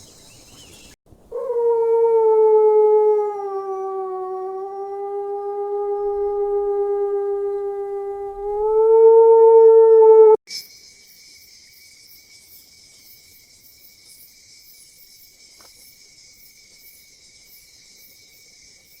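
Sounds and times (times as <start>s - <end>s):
loud held howl: 1.3s - 10.4s
insects trilling: 10.5s - 19.0s.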